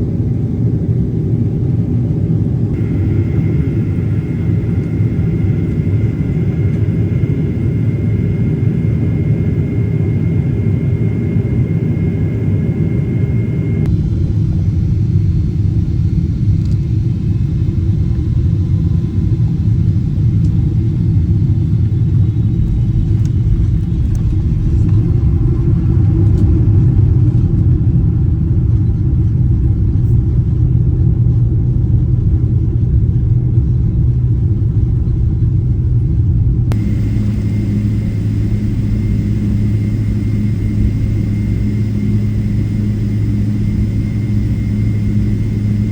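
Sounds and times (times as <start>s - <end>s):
jet engines low rumble: 0.0s - 45.9s
faint high whine: 2.8s - 14.7s, 36.7s - 45.9s.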